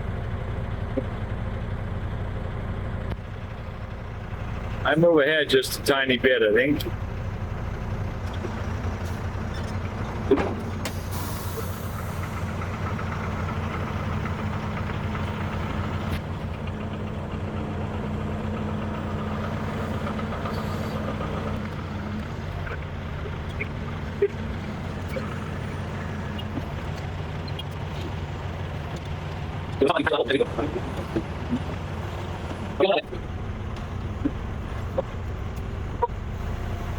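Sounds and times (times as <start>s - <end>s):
truck diesel engine idling: 0.0s - 36.9s
air brake hiss: 10.9s - 12.3s.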